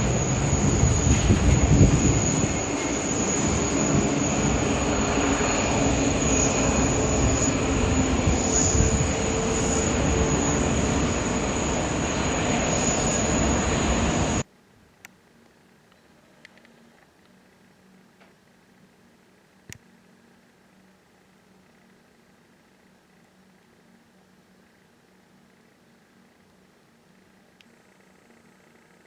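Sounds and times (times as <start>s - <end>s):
high-pitched engine whine: 0.0s - 14.5s, 19.1s - 29.0s
jet airliner engines running: 0.0s - 14.5s.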